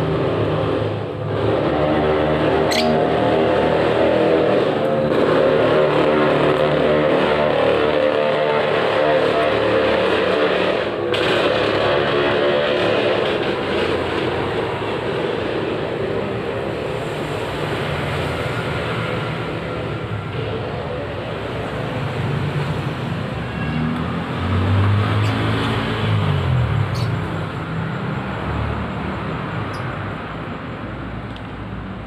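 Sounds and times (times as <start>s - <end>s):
vehicle engine running: 0.0s - 23.4s.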